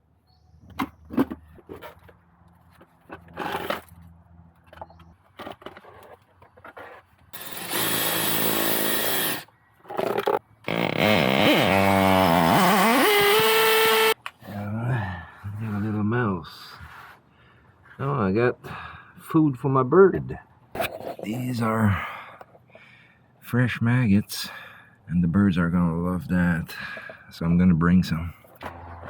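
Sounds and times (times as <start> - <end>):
small power tool motor running: 7.4 - 9.5, 10.2 - 14.2.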